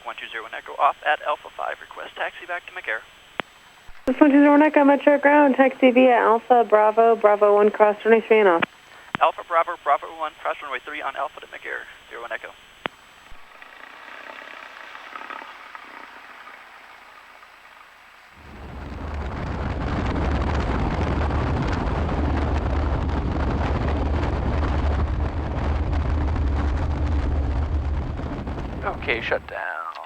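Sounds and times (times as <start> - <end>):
airplane engine and propeller rumble: 0.0 - 12.8, 13.4 - 30.0
faint hiss: 0.0 - 13.6, 28.0 - 30.0.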